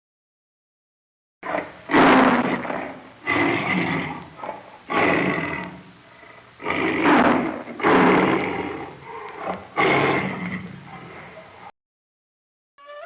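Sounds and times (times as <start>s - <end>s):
animal roaring calls: 1.4s - 11.7s.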